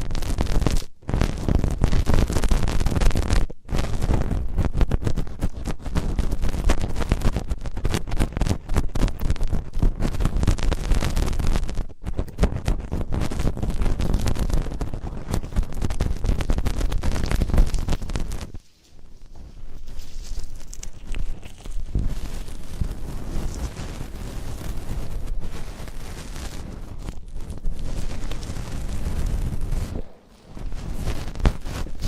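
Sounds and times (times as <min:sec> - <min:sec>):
crackling and scratching on microphone: 0:00.0 - 0:32.0
low rumble: 0:21.5 - 0:32.0.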